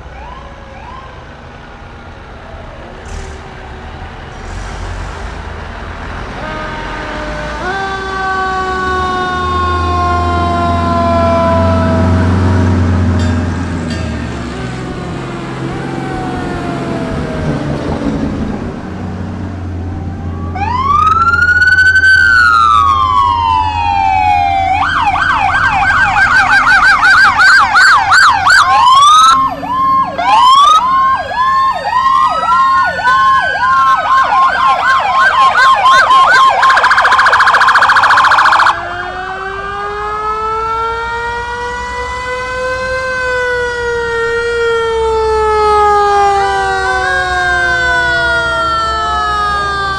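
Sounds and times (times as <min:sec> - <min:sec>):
other sirens wailing: 0:00.0 - 0:49.9
electronic siren wailing and yelping: 0:20.0 - 0:39.1.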